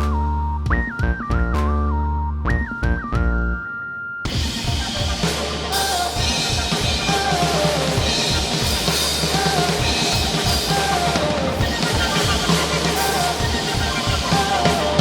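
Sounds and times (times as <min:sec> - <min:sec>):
sustained bass: 0:00.0 - 0:03.7, 0:04.3 - 0:15.0
drum kit beat: 0:04.3 - 0:15.0.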